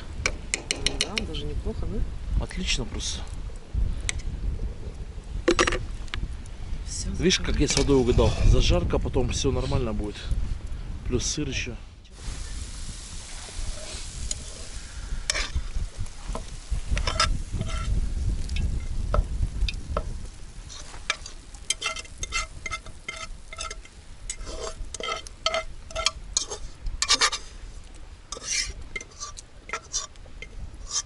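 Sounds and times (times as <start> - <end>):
food sizzling: 12.1 - 31.0
metal spoon scraping cookware: 21.1 - 27.5, 28.3 - 30.2.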